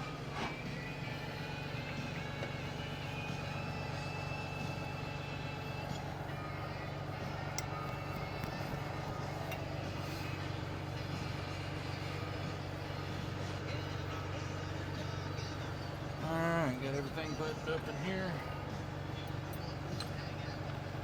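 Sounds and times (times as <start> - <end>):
low engine drone: 0.0 - 21.0.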